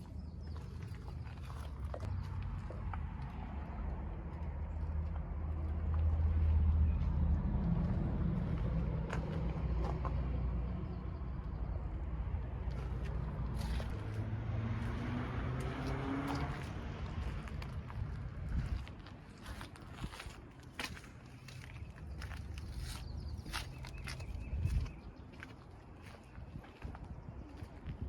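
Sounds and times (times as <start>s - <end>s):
low engine rumble: 0.0s - 28.0s.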